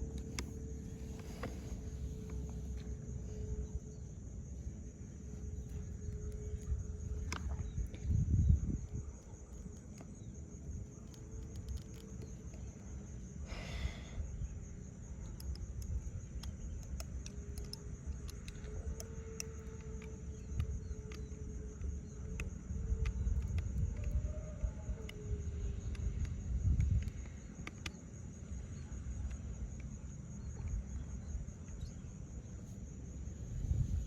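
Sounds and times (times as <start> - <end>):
faint wavering hum: 0.0 - 34.0
wind rumble on microphone: 0.0 - 34.0
light clicks: 5.3 - 12.9, 15.2 - 32.0.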